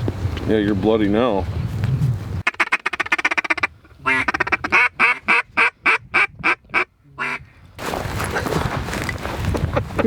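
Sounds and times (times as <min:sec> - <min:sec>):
duck quacking: 0:02.4 - 0:07.4.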